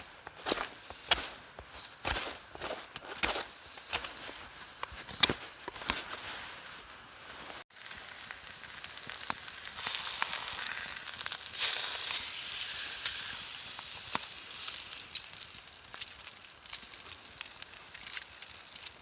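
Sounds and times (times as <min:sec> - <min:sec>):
food sizzling in a hot pan: 0:07.7 - 0:19.0
sharp pops and crackles: 0:07.7 - 0:19.0.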